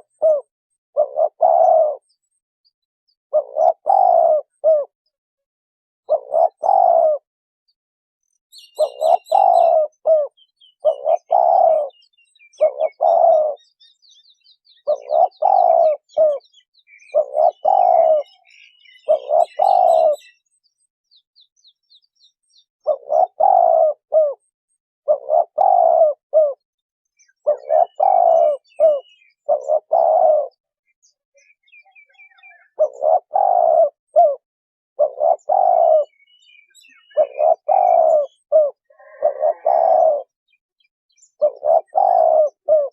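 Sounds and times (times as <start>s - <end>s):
dove cooing: 0.0s - 2.2s, 3.3s - 5.0s, 6.0s - 7.3s, 8.6s - 13.9s, 14.7s - 20.4s, 22.8s - 26.6s, 27.2s - 30.7s, 31.9s - 34.4s, 35.0s - 40.4s, 41.3s - 42.9s
faint bird chirps: 8.2s - 34.4s, 35.0s - 42.9s.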